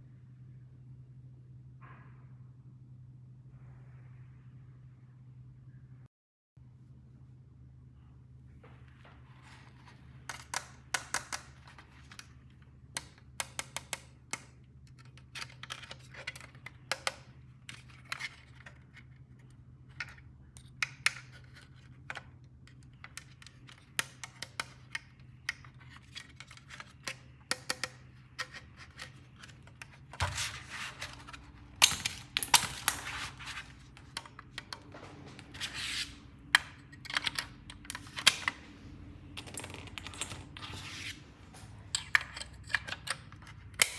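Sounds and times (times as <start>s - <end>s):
toy pieces clicking and tapping: 10.3s - 11.8s, 13.0s - 17.2s
handling noises: 14.9s - 43.9s.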